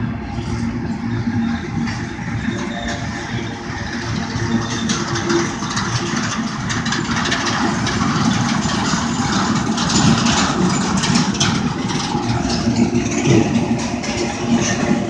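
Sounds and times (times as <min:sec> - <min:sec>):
freight train wheels rumbling: 0:00.0 - 0:15.0
train cars clanking and rattling: 0:00.0 - 0:15.0.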